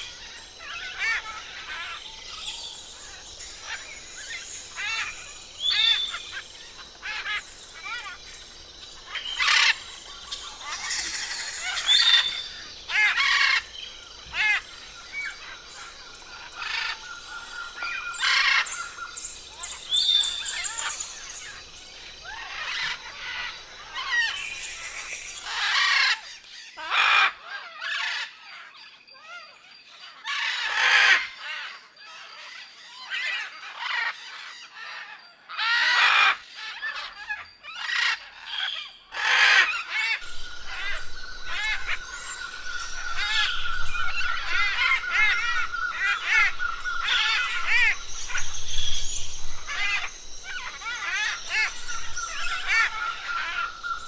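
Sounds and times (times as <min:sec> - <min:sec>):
birds squawking: 0:00.0 - 0:26.3, 0:38.0 - 0:54.0.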